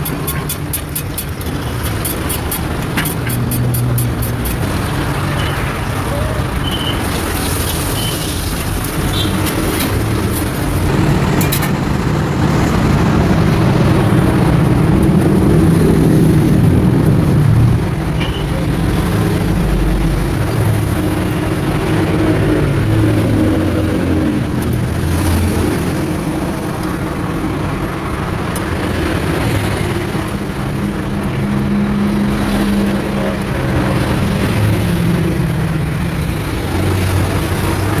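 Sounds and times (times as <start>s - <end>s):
vehicle engines passing: 0.0s - 38.0s.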